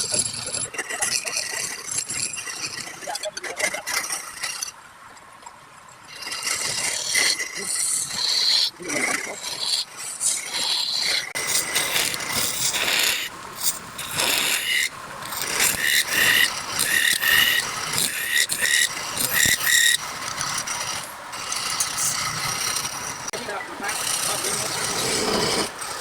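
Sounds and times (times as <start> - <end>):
wood lathe scraping hiss: 6.2 - 26.0
high-pitched tool squeals: 11.0 - 26.0.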